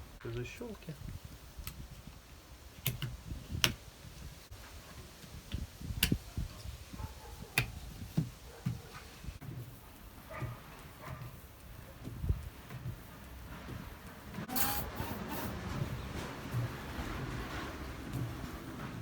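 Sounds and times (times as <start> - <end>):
plastic clips snapping into place: 5.5 - 6.2.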